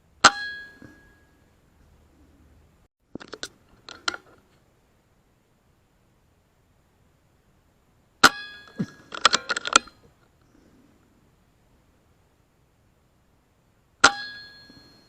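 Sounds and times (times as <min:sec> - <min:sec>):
sharp metallic clank: 0:00.2 - 0:01.4, 0:14.0 - 0:15.0.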